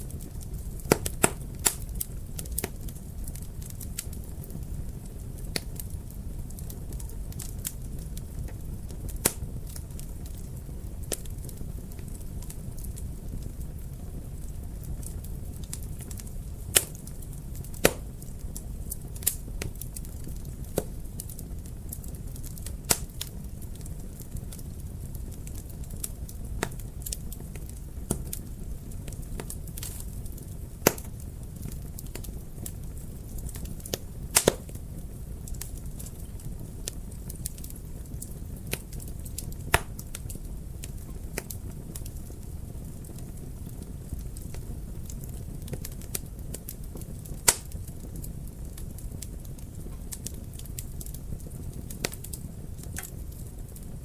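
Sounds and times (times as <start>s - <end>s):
fire crackling and popping: 0.0s - 54.0s
flames rushing: 0.1s - 54.0s.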